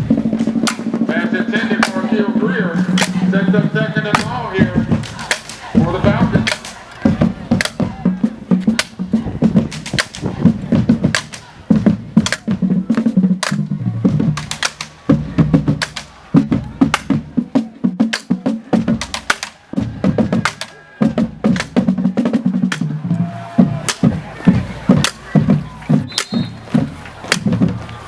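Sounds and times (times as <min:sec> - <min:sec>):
deep drums: 0:00.0 - 0:28.0
snare drum hits: 0:00.4 - 0:02.1, 0:02.8 - 0:03.4, 0:04.1 - 0:08.0, 0:08.6 - 0:16.2, 0:22.6 - 0:27.9.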